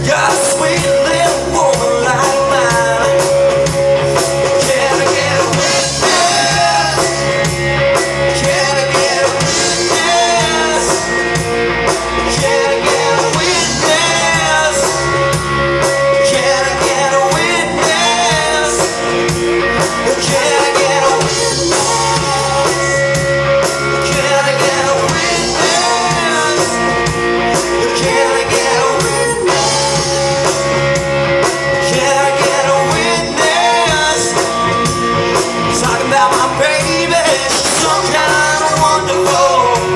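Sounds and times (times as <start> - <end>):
rock and roll band playing: 0.0 - 39.9
person singing: 4.4 - 7.5, 8.2 - 11.4, 12.1 - 15.4, 16.0 - 19.2, 20.0 - 23.2, 23.9 - 30.8, 31.7 - 34.6, 35.4 - 39.9.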